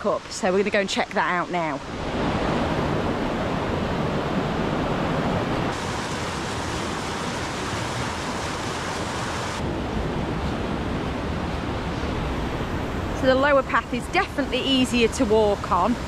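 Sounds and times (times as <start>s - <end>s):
waterfall rushing: 1.8s - 9.6s.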